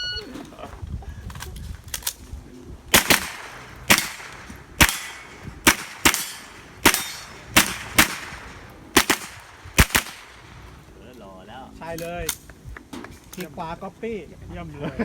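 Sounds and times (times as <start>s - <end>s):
rifle shots: 2.9s - 10.8s.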